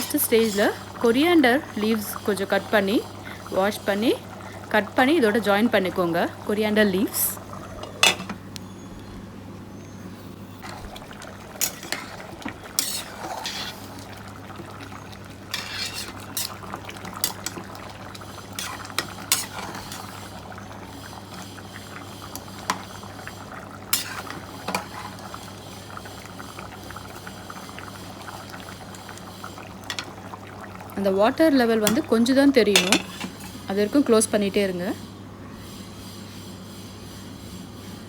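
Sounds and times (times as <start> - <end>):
metal spoon scraping a pot: 0.0 - 0.8, 11.6 - 14.0, 15.5 - 17.6, 18.6 - 20.3, 23.9 - 25.2, 32.8 - 33.5.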